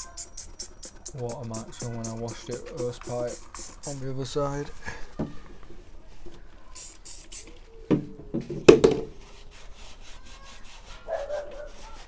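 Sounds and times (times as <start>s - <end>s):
short hisses: 0.0s - 4.1s, 6.8s - 7.6s
rubbing and handling noise: 0.0s - 12.0s.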